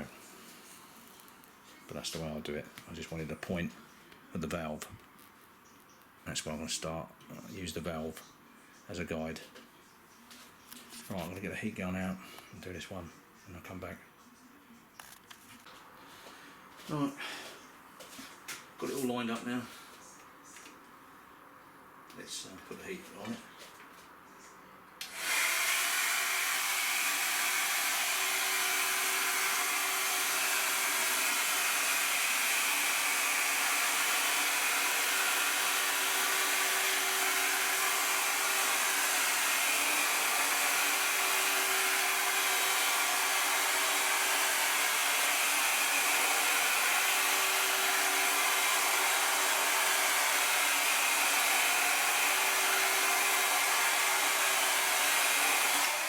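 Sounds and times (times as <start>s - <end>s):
hair dryer blowing: 25.0s - 56.0s.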